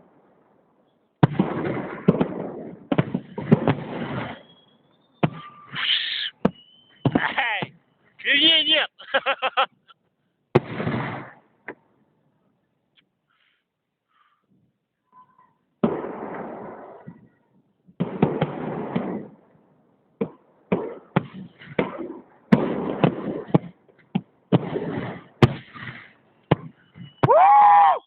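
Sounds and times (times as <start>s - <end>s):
fireworks bangs: 1.2s - 8.8s, 10.5s - 11.8s, 15.8s - 19.6s, 20.2s - 28.0s.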